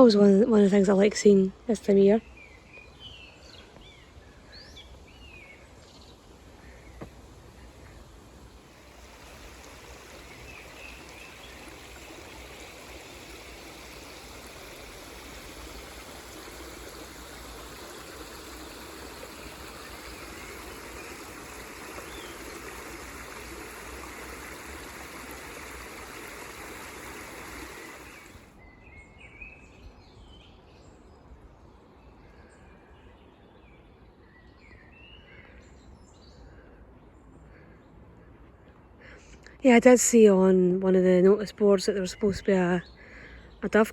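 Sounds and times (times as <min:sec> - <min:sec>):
birds chirping: 0:00.0 - 0:30.3
stream rushing: 0:06.2 - 0:28.5.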